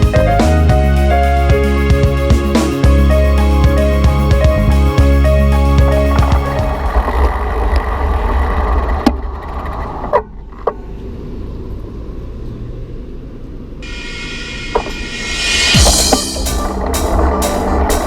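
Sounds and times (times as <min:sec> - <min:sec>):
traffic: 0:09.4 - 0:15.0
wind rush: 0:13.8 - 0:17.2.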